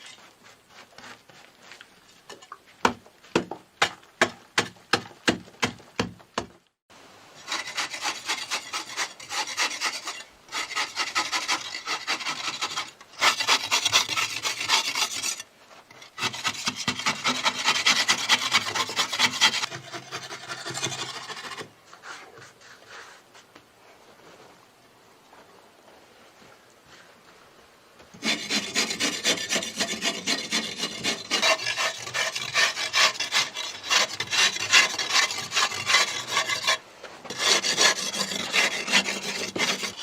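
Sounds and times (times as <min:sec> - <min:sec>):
hand tool rasping against wood: 0:07.5 - 0:15.4, 0:16.1 - 0:21.6, 0:28.2 - 0:40.0.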